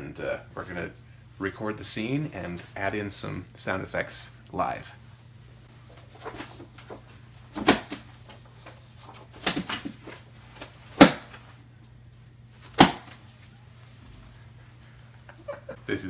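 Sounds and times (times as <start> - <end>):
faint steady hum: 0.0 - 16.0
book thumps and slaps: 5.9 - 11.5, 12.6 - 13.5.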